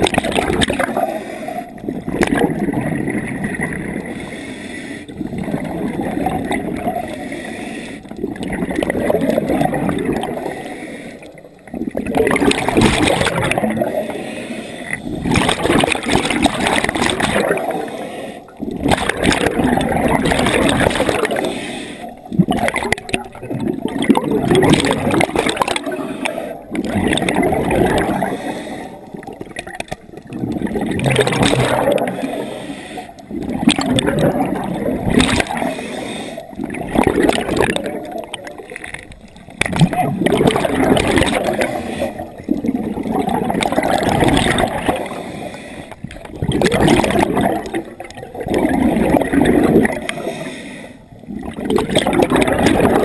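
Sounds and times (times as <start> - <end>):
bubbles gurgling underwater: 0.0 - 4.3, 5.1 - 7.4, 8.0 - 50.4, 51.1 - 53.0
diver breathing through regulator: 0.9 - 1.8, 3.9 - 5.4, 6.9 - 8.2, 10.2 - 11.5, 13.7 - 15.5, 17.1 - 18.7, 21.0 - 22.4, 25.8 - 26.7, 28.0 - 29.4, 31.8 - 33.4, 35.4 - 36.8, 41.4 - 42.6, 44.9 - 46.2, 49.9 - 51.2.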